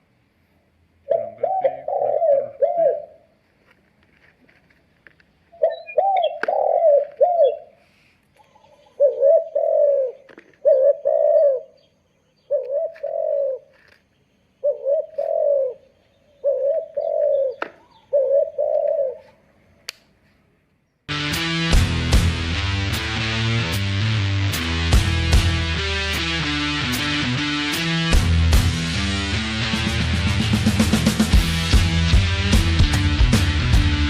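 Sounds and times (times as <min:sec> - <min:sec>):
dove cooing through speaker: 0:01.1 - 0:03.3, 0:05.5 - 0:07.8, 0:08.4 - 0:11.8, 0:12.5 - 0:13.8, 0:14.6 - 0:19.4.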